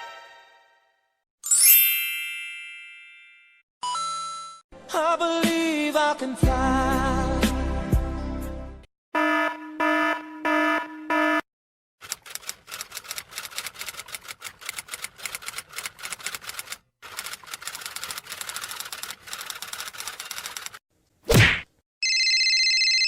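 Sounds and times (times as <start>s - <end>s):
rapid irregular clicking: 12.0s - 20.8s.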